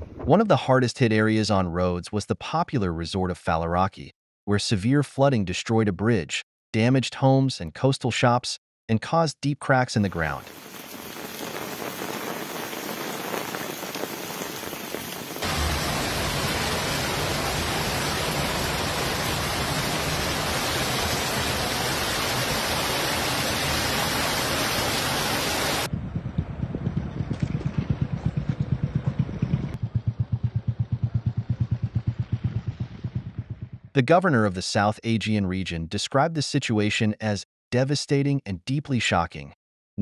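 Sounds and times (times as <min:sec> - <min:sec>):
heavy rain pouring: 0:10.0 - 0:25.9.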